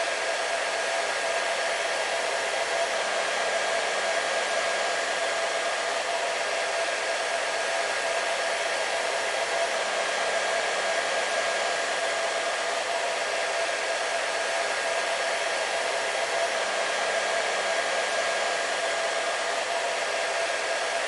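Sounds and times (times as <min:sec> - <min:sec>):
hair dryer running: 0:00.0 - 0:21.0.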